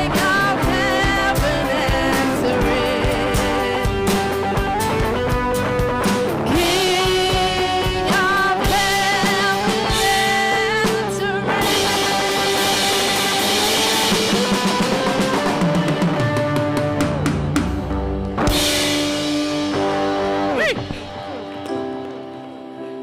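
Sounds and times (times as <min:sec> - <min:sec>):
person singing: 0:00.0 - 0:05.4, 0:06.5 - 0:17.0
worship band playing: 0:00.0 - 0:23.0.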